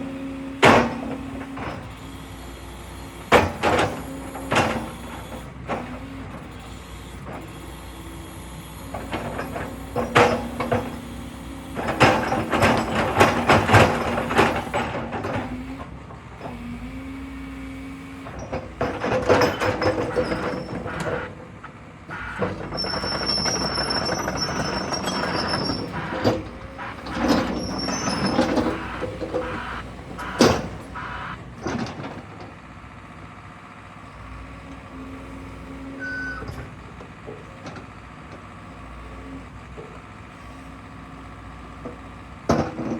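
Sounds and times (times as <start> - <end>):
excavator diesel engine and hydraulics: 0.0 - 42.9
faint high squeal: 22.2 - 31.4.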